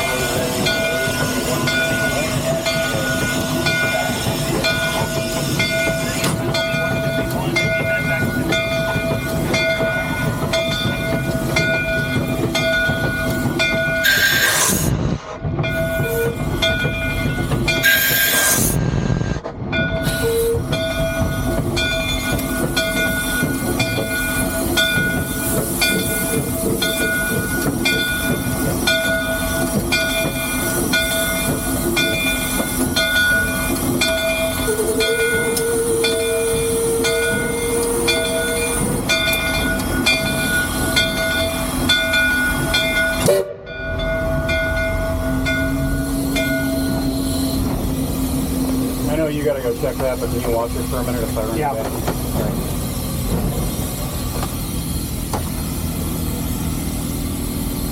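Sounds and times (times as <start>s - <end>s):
steam locomotive running with knocks: 0.0s - 57.9s
steam hiss bursts: 14.0s - 15.4s, 17.8s - 19.3s.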